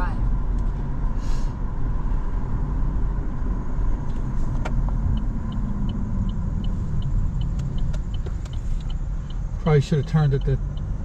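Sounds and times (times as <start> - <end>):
road and engine rumble in car: 0.0 - 11.0
turn signal clicking: 4.0 - 11.0.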